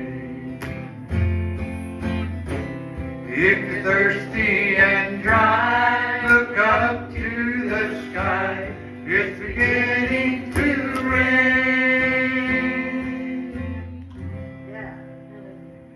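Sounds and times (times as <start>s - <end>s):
man singing: 0.0s - 0.9s, 3.2s - 14.0s
guitar accompaniment: 0.0s - 15.9s.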